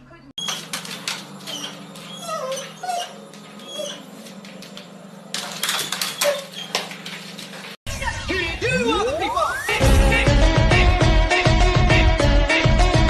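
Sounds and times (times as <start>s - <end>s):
rustling noise: 6.5s - 7.8s.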